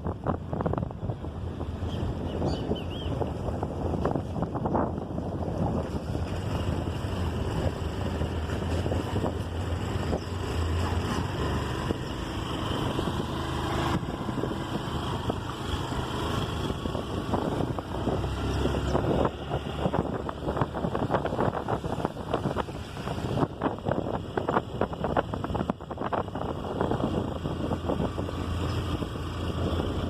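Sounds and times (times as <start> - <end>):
wet road noise: 0.0 - 30.0
wind buffeting microphone: 0.0 - 30.0
scooter engine running: 3.7 - 30.0.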